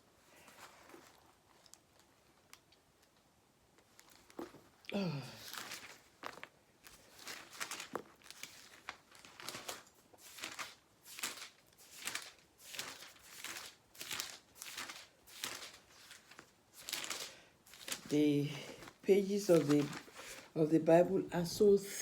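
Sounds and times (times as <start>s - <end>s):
pages being leafed through: 3.8s - 20.9s.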